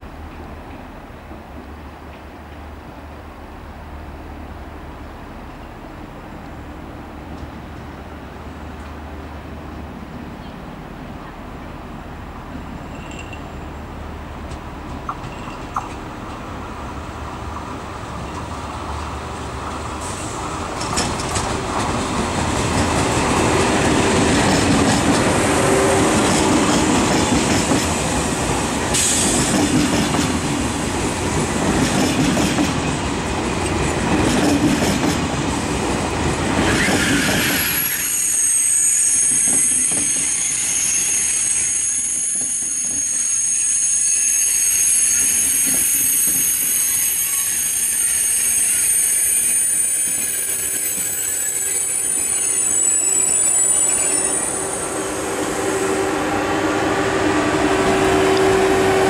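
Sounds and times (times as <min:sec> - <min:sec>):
high steady train squeal: 0:04.1 - 0:59.0
train wheels rumbling and clattering: 0:07.2 - 0:38.1, 0:39.2 - 0:41.6, 0:44.7 - 0:55.6.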